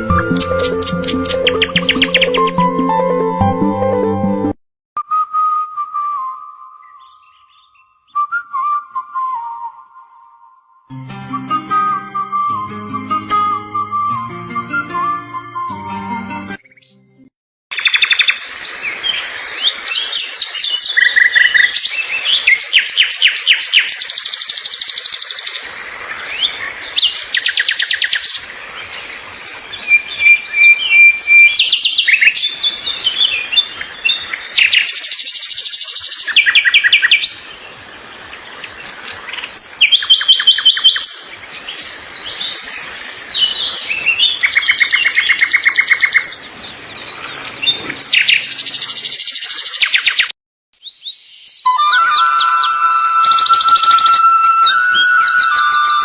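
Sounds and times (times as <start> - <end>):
birds chirping and trilling: 0.0 - 2.6, 6.8 - 8.2, 17.8 - 56.0.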